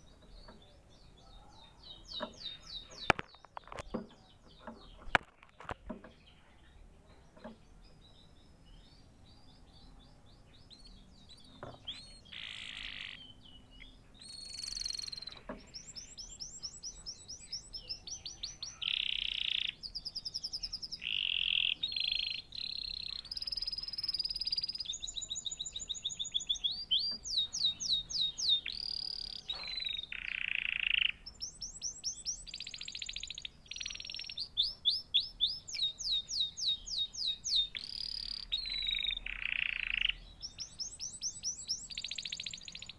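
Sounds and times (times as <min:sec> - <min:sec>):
canary singing: 0:00.0 - 0:42.9.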